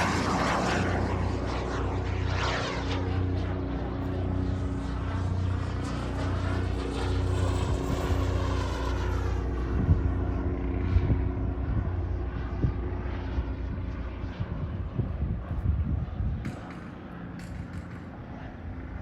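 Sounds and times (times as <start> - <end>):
wind bumps on microphone: 13.7 - 16.8.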